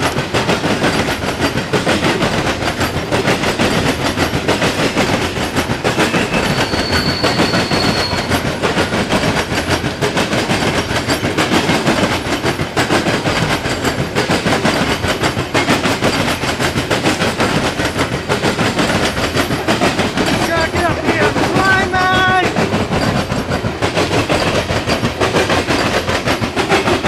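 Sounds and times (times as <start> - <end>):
train wheels clicking over rail joints: 0.0 - 27.0
high wheel squeal: 6.0 - 8.5.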